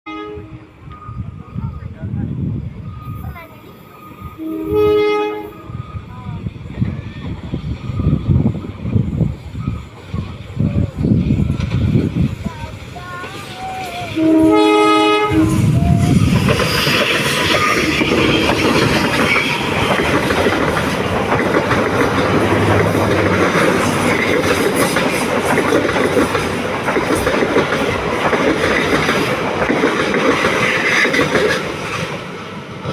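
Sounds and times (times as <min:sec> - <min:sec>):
train rolling rumble: 0:00.2 - 0:32.9
wheels clattering over rail joints: 0:16.3 - 0:32.3.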